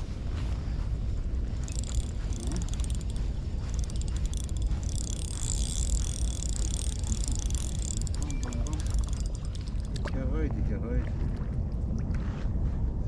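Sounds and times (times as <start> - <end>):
wind rumble on microphone: 0.0 - 13.0
spinning reel gears ticking: 1.6 - 10.1.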